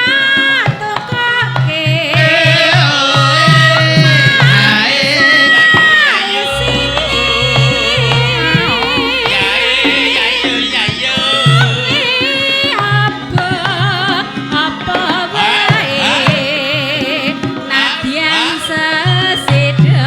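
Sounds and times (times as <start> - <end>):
hand-drum beats: 0.0 - 20.0
person singing with vibrato: 0.0 - 20.0
gamelan band playing slowly: 3.5 - 16.4
deep bass note: 6.5 - 11.9.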